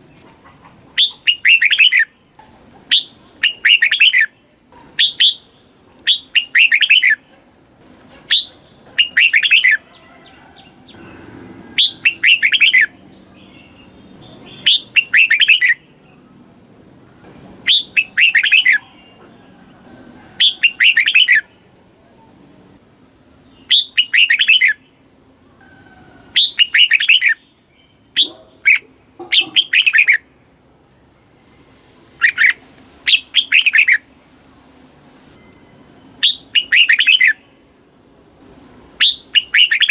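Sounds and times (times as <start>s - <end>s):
bird singing warbled phrases: 0.9s - 7.3s, 8.2s - 9.8s, 10.8s - 19.3s, 20.4s - 22.3s, 22.9s - 25.6s, 26.3s - 30.4s, 32.1s - 34.1s, 35.4s - 37.7s, 39.0s - 39.9s.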